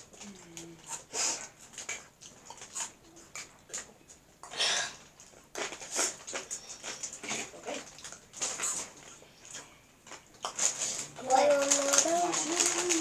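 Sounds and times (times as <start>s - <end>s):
chewing and crunching snacks: 0.0s - 13.0s.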